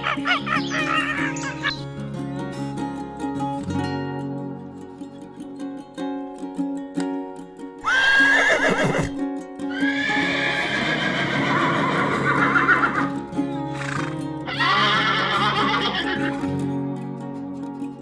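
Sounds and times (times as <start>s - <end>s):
background music: 0.0s - 18.0s
horse whinnying: 7.8s - 13.1s, 13.7s - 16.4s.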